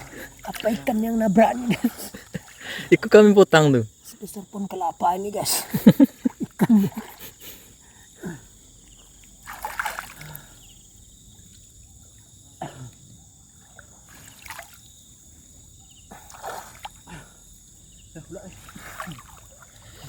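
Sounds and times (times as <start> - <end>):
high whine of insects: 0.0 - 20.0
water splashing off fishing net: 9.4 - 10.4, 14.1 - 14.8, 18.6 - 19.8.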